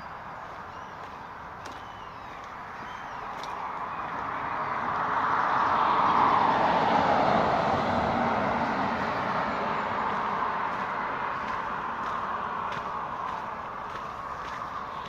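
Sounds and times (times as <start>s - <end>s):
vehicle passing by: 3.0s - 15.0s.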